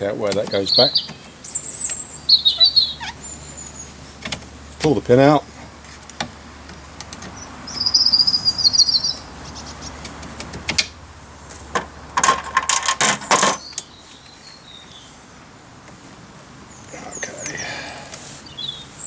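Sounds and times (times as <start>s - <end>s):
sharp plastic clicks and taps: 6.0s - 7.4s.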